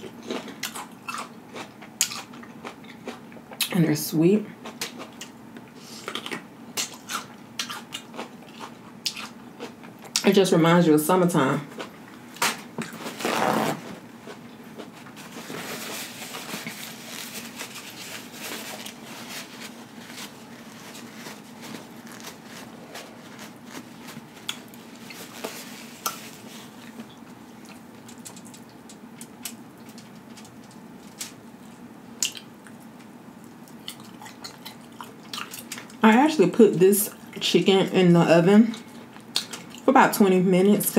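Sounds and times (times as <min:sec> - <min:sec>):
wet chewing and smacking: 0:00.2 - 0:03.7, 0:04.6 - 0:10.3, 0:21.0 - 0:30.8, 0:31.6 - 0:36.0, 0:38.7 - 0:39.9
small crunches: 0:11.8 - 0:33.0
paper towel tearing: 0:13.0 - 0:14.0.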